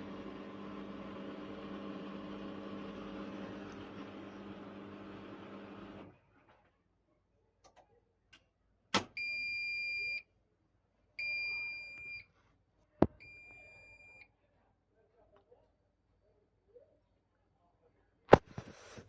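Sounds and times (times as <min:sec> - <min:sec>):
washing machine hum: 0:00.0 - 0:06.2.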